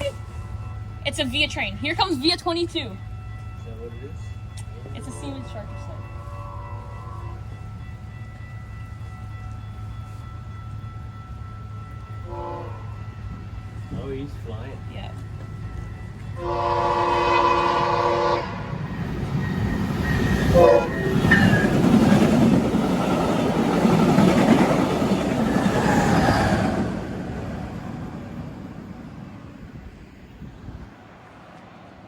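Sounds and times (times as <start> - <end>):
train wheel and rail noise: 0.0 - 32.0
train horn: 5.2 - 7.6, 12.2 - 13.2, 16.4 - 18.9, 20.2 - 21.7.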